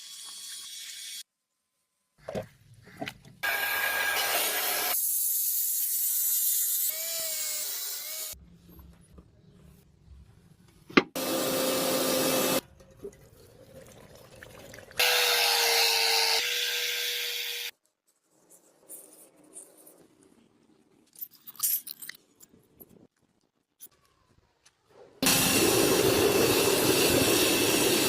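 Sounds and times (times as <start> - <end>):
loud hissing bursts: 25.2 - 28.0.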